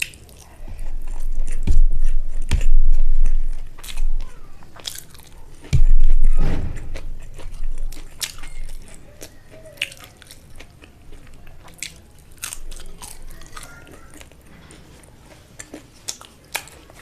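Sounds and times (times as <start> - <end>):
loud low thump: 1.6 - 3.2, 5.7 - 7.2
chewing and wet mouth clicks: 7.0 - 17.0.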